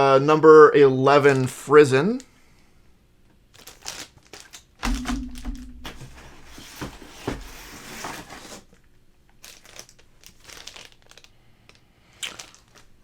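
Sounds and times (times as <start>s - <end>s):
plastic packaging crinkling: 3.5s - 5.2s, 9.4s - 13.0s
sharp clicks and knocks: 4.8s - 6.3s.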